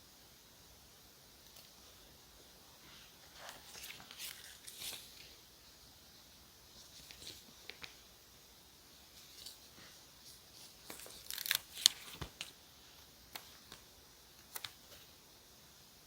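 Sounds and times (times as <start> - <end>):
crisp paper rustling: 2.9 - 5.4, 6.7 - 8.0, 9.1 - 12.6.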